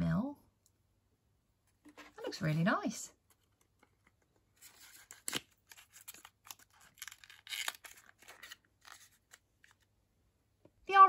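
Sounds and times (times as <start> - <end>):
hands handling packaging: 3.3 - 9.9.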